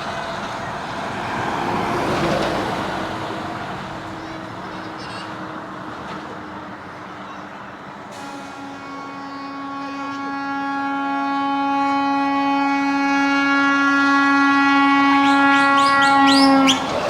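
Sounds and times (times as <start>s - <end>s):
truck air horn blast: 8.1s - 17.0s.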